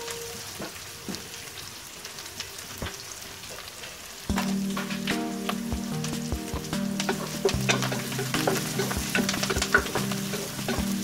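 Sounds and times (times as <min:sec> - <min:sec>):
onions sizzling in hot oil: 0:00.0 - 0:11.0
spatula tapping and scraping pot: 0:06.5 - 0:11.0.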